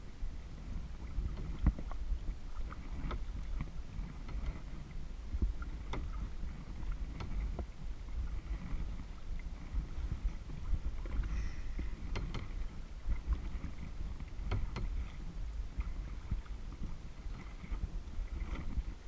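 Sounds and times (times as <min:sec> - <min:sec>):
water sloshing against paddle: 0:00.0 - 0:19.0
wind rumble on microphone: 0:00.0 - 0:19.0.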